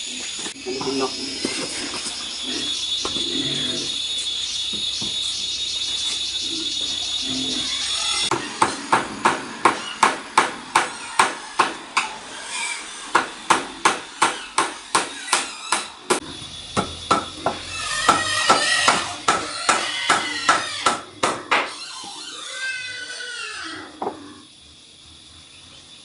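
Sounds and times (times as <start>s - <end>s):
rapid tool strikes: 8.3s - 12.2s, 13.1s - 16.2s.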